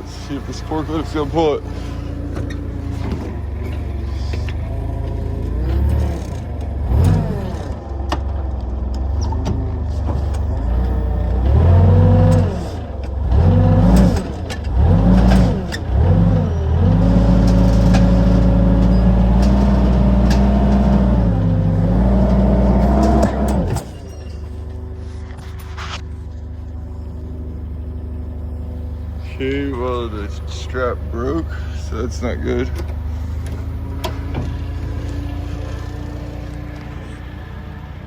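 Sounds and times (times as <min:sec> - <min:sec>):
forklift engine revving: 0:00.0 - 0:38.0.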